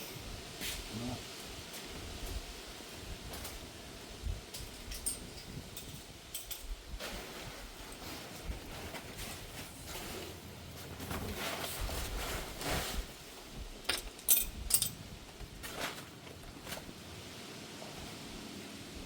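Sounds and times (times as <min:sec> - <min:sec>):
metal hand tools clinking: 0:04.6 - 0:06.8, 0:13.9 - 0:15.0
rustling: 0:07.0 - 0:17.2.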